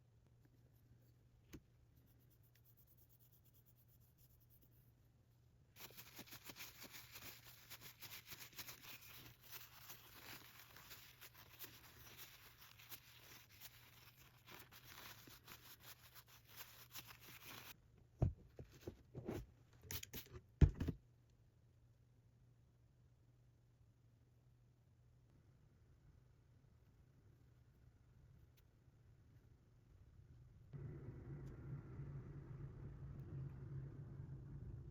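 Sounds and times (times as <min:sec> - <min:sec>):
scratchy rubbing strokes on metal: 0:05.8 - 0:17.8
tool knocks and clunks: 0:20.6 - 0:21.0.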